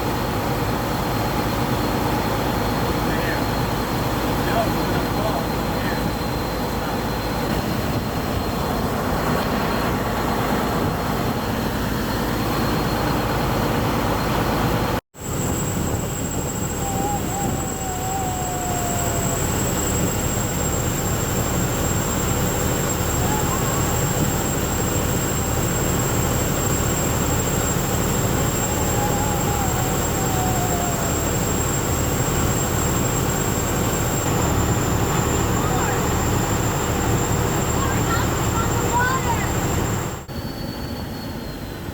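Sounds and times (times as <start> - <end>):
water and wind noise: 0.0 - 40.4
boat engine drone: 0.0 - 41.9.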